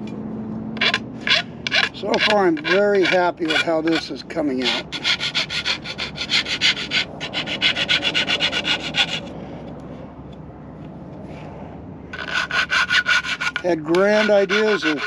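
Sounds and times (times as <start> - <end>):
hand rubbing strokes on metal: 0.8 - 9.3, 12.2 - 15.0.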